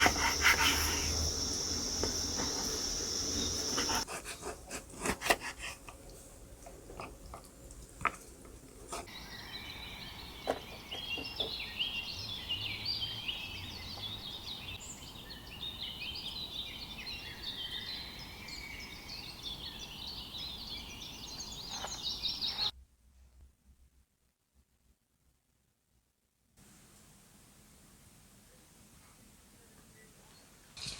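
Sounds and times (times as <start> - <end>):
sharp knocks and rubbing: 0.0 - 4.0
small birds chirping: 0.0 - 4.0, 9.1 - 22.7.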